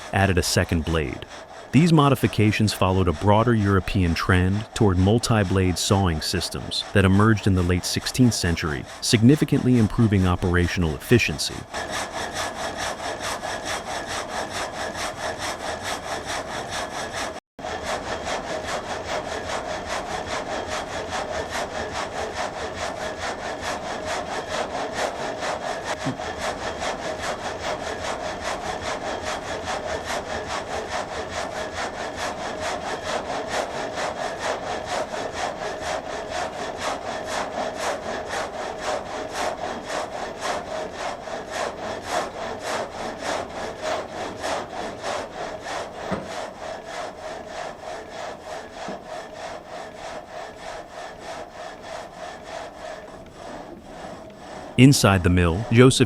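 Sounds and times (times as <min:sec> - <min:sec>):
frame saw rasping through wood: 0:00.0 - 0:55.8.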